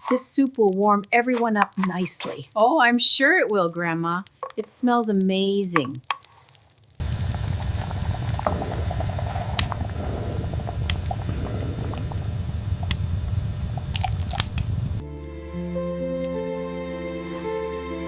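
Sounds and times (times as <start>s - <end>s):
soup bubbling in pot: 7.0s - 15.1s.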